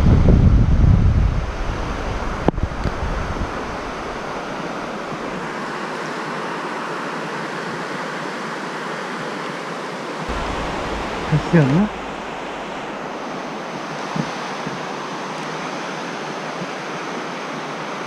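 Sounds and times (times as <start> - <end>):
wind buffeting microphone: 10.3 - 13.7
stream water flowing: 10.3 - 14.1.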